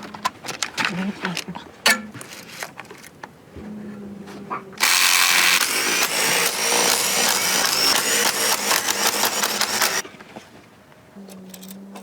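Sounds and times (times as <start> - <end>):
power tool clattering: 4.8 - 10.0.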